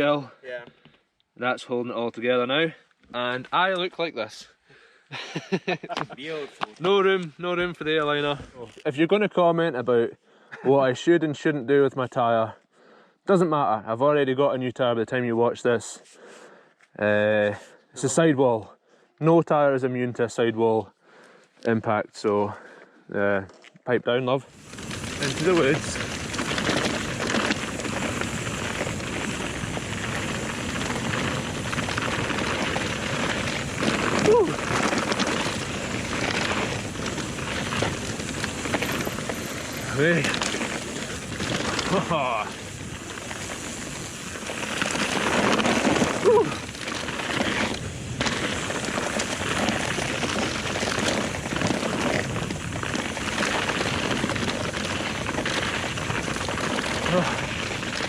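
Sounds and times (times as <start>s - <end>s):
bike tyres on dirt trail: 6.2s - 9.2s, 20.0s - 58.0s
bike rattling and knocking: 24.6s - 58.0s.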